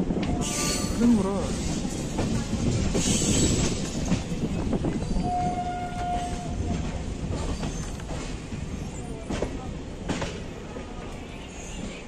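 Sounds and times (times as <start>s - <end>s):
train wheels clacking over rail joints: 0.1s - 10.6s
train horn note: 5.2s - 6.5s.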